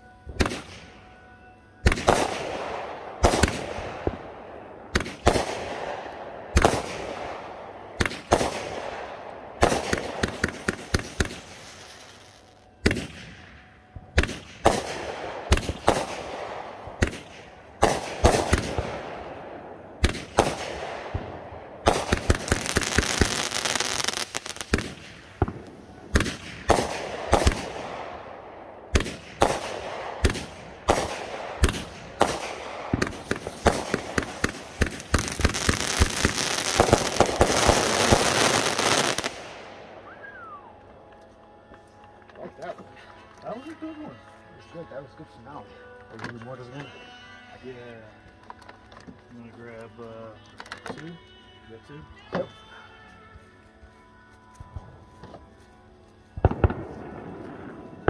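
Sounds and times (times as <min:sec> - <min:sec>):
firework bangs: 0:01.8 - 0:04.3, 0:04.9 - 0:13.4, 0:14.1 - 0:40.1
firework crackling: 0:01.8 - 0:04.3, 0:04.9 - 0:13.5, 0:14.1 - 0:40.8
hissing crackle: 0:01.8 - 0:43.4.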